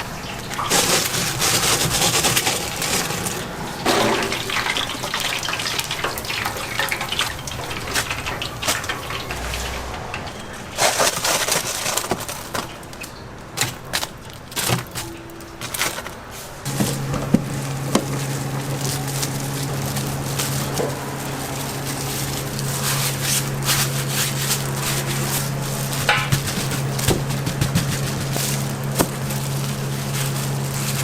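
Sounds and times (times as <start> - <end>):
machine motor humming: 16.6 - 31.0
kitchen knocks and clatter: 26.0 - 29.3.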